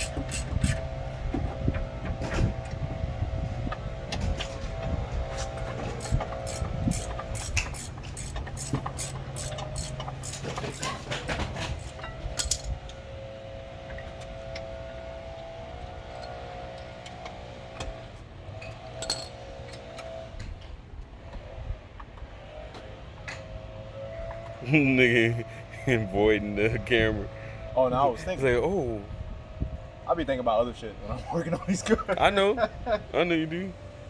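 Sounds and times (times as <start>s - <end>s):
metal tools clinking and rattling: 0.0s - 0.8s, 5.5s - 12.8s, 18.9s - 19.4s.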